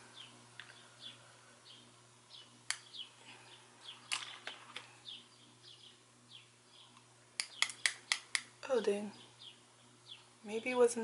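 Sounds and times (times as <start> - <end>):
low steady hum: 0.0 - 11.0
small bird chirping: 0.1 - 10.6
sharp clicks: 7.4 - 8.5.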